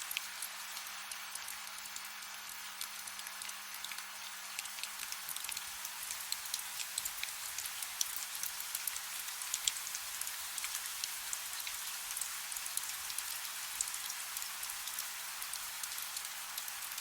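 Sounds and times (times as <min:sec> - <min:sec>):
soft rain with drop ticks: 0:00.0 - 0:17.0.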